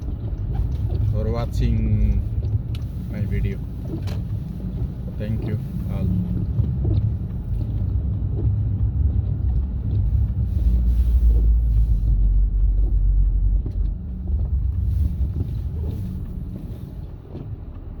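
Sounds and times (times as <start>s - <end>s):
car driving on snowy road: 0.0s - 18.0s.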